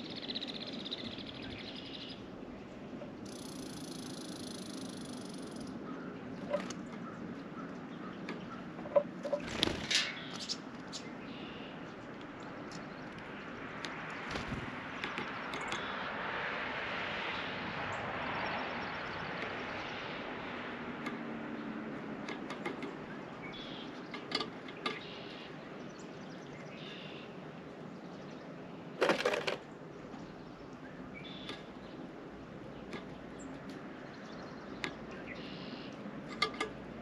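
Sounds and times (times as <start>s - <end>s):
soft background rush: 0.0s - 37.0s
birds pecking and perching clicks: 2.9s - 26.6s, 29.0s - 37.0s
wings fluttering: 9.2s - 10.9s, 13.9s - 15.8s, 29.0s - 29.6s.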